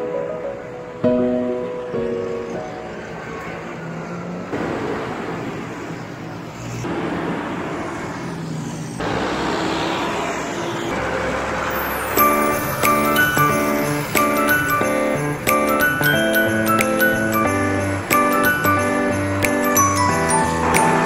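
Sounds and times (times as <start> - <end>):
music: 0.0 - 3.0, 11.7 - 21.0
tractor engines: 0.4 - 21.0.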